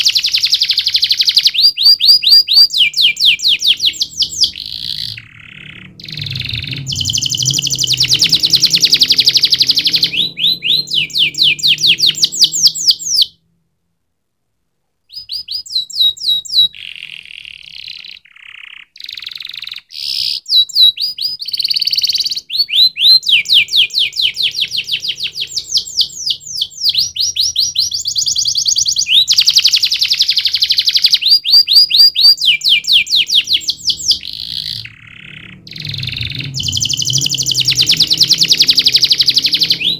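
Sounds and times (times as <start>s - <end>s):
canary singing: 0.0s - 13.4s, 15.1s - 39.9s.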